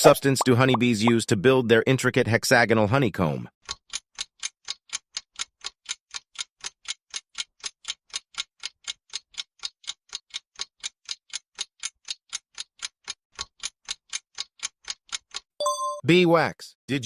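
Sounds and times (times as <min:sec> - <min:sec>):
countdown timer ticking: 0:00.0 - 0:01.3, 0:15.6 - 0:16.2.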